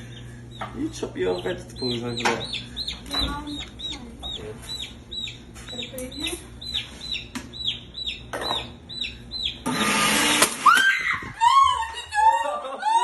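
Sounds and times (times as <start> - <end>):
chick peeping: 0.0 - 10.4
blender motor running: 9.6 - 11.0
people laughing: 11.4 - 13.0.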